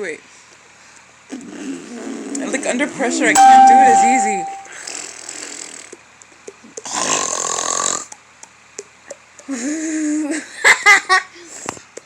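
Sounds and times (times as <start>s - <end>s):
raspy snore-like throat sound: 6.8s - 8.1s.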